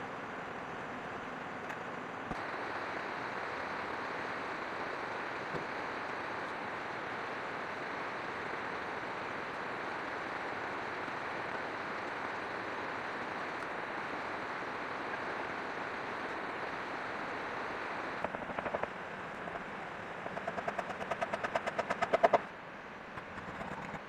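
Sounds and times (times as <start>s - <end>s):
steady hiss: 2.3s - 20.0s.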